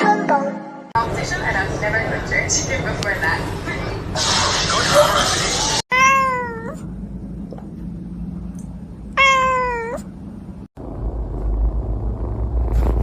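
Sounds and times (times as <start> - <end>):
cat meowing: 5.9 - 6.9, 9.2 - 10.1
low rumble: 9.9 - 13.0.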